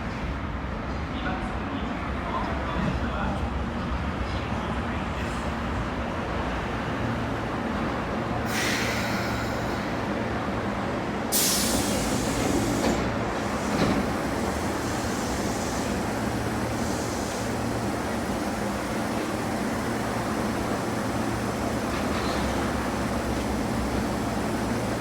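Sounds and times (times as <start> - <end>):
train rumble: 0.0 - 25.0
air hisses: 8.5 - 10.0, 11.3 - 18.8.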